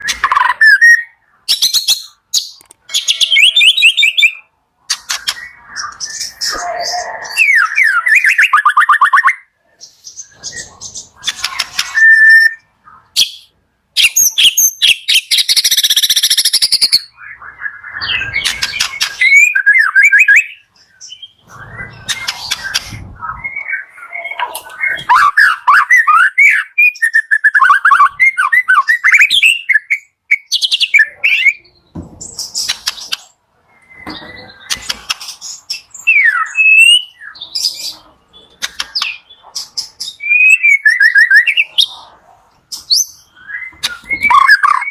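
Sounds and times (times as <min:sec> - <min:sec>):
bird singing whistled phrases: 0:03.0 - 0:04.5, 0:05.4 - 0:09.4, 0:11.5 - 0:31.7, 0:36.0 - 0:37.4, 0:40.1 - 0:41.7, 0:42.9 - 0:44.9.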